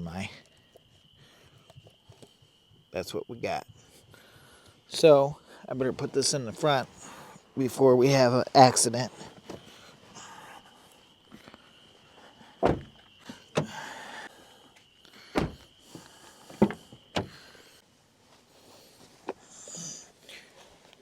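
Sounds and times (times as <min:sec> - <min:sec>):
knocks and thumps inside a car: 0:12.6 - 0:13.9, 0:15.4 - 0:15.7, 0:16.5 - 0:17.4.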